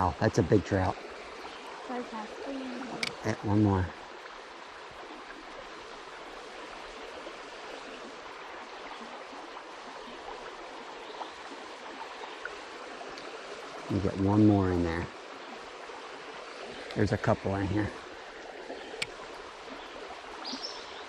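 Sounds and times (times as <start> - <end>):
stream water rushing: 0.0 - 21.0.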